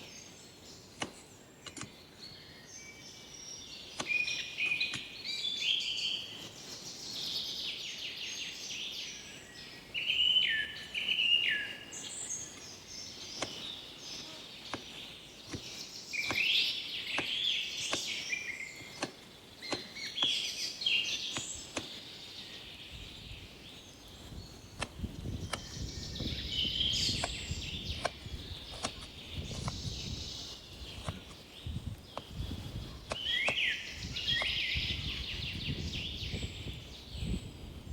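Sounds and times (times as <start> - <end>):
birds singing and chirping: 0.0 - 37.9
sharp clicks and knocks: 1.0 - 2.0, 18.9 - 20.4, 27.1 - 29.8.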